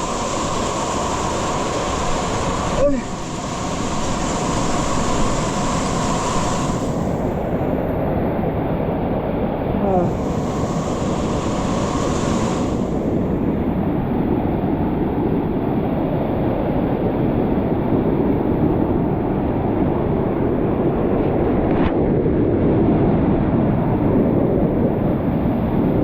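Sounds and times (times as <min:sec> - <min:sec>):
waterfall rushing: 0:00.0 - 0:07.2, 0:10.0 - 0:13.6.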